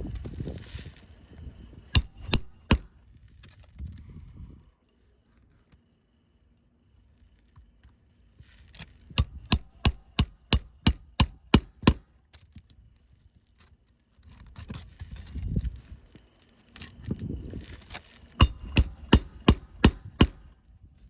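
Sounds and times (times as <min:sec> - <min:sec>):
hammer striking a nail: 0:02.0 - 0:02.9, 0:09.2 - 0:12.1, 0:18.4 - 0:20.5.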